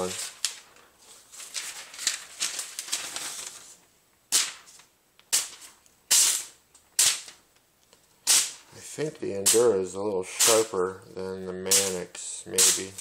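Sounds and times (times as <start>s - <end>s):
paper rustling: 0.0s - 5.8s
knife slicing paper: 10.4s - 10.7s, 11.7s - 13.0s.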